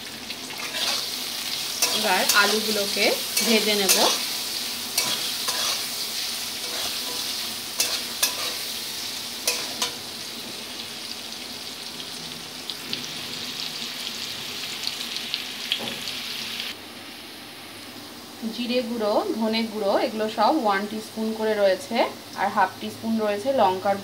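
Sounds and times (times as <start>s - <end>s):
potatoes sizzling in oil: 0.0s - 24.0s
spatula scraping metal pan: 5.0s - 6.0s, 6.6s - 8.7s.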